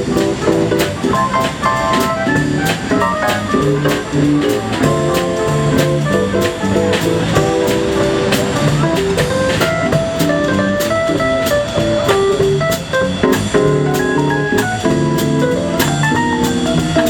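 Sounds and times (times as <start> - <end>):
instrumental jazz band: 0.0 - 17.0.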